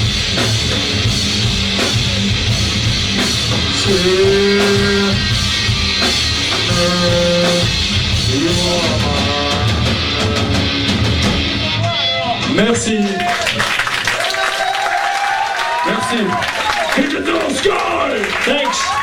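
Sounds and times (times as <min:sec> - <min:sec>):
rock band playing: 0:00.0 - 0:14.1.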